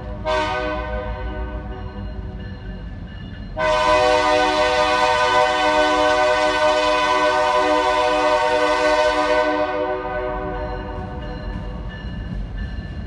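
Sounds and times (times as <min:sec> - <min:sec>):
locomotive air horn blast: 0:00.2 - 0:01.7, 0:03.6 - 0:10.6.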